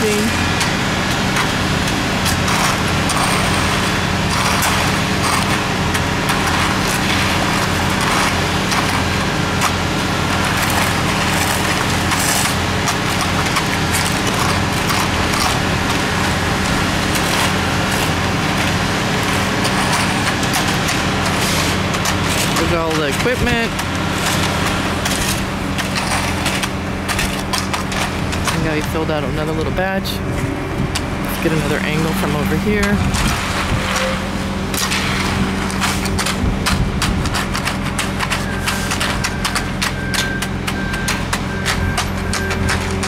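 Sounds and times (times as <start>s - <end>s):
machinery engine humming: 0.0s - 43.0s
knocks from construction work: 30.8s - 43.0s.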